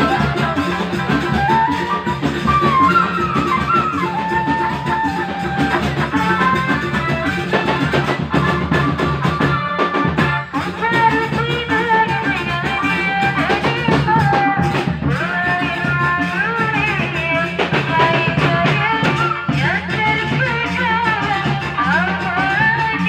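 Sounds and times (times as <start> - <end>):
drums: 0.0 - 23.0
guitar: 0.0 - 23.0
person singing: 10.6 - 23.0.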